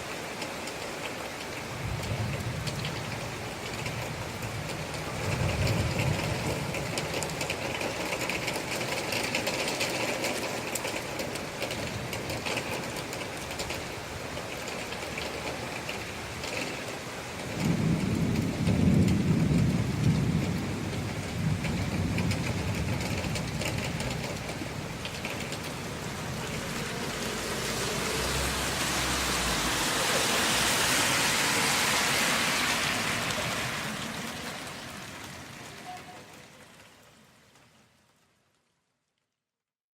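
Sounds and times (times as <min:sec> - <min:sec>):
steady rain: 0:00.0 - 0:39.6
low rumble of thunder: 0:01.7 - 0:10.5, 0:17.4 - 0:31.6.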